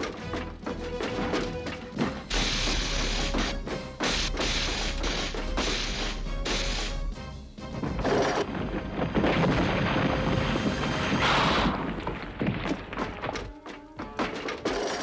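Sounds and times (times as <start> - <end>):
action music: 0.0 - 11.8
cartoon fight thuds and impacts: 2.0 - 13.0
sharp strikes: 2.3 - 8.5.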